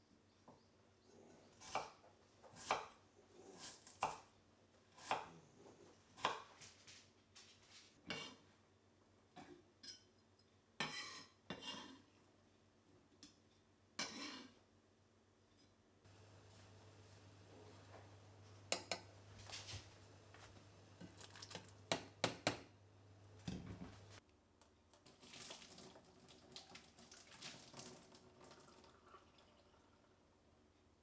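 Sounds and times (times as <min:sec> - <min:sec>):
tap water running: 0:21.0 - 0:22.2, 0:25.0 - 0:30.1.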